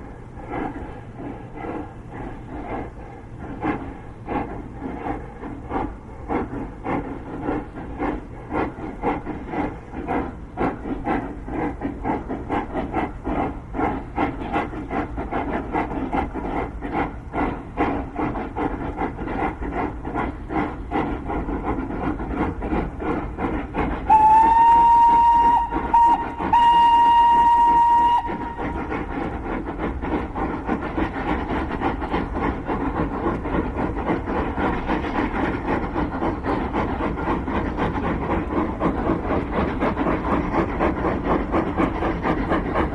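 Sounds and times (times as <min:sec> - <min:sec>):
steam locomotives chuffing: 0:00.0 - 0:42.9
steam whistle blast: 0:24.1 - 0:28.6.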